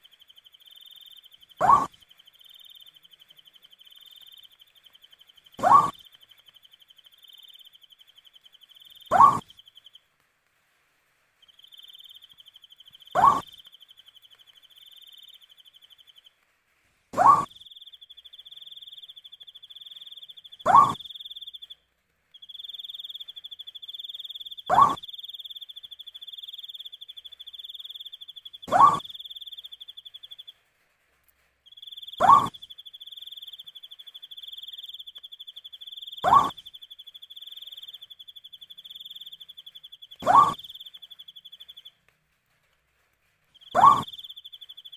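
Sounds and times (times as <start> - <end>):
owl call rising in pitch: 1.6 - 1.9, 5.6 - 6.0, 9.1 - 9.4, 13.2 - 13.6, 28.7 - 29.1, 32.2 - 32.6, 36.2 - 36.6, 40.2 - 40.7, 43.8 - 44.2
cricket trill: 31.7 - 41.9, 43.6 - 44.9.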